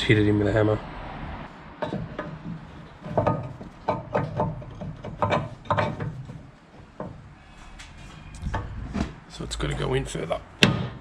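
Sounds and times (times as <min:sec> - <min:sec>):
metal knocks and clunks: 0:01.6 - 0:09.9, 0:10.5 - 0:11.0.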